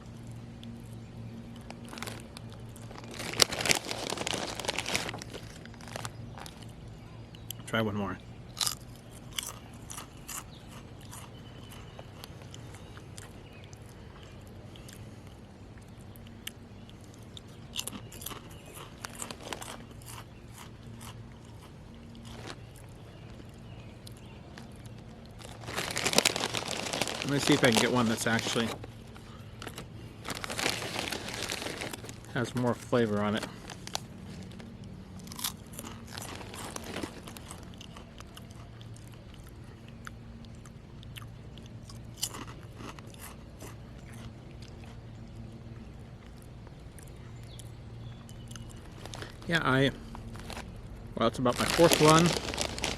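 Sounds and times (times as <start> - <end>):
person chewing potato chips: 0.1 - 6.8, 8.5 - 50.9, 51.5 - 52.9.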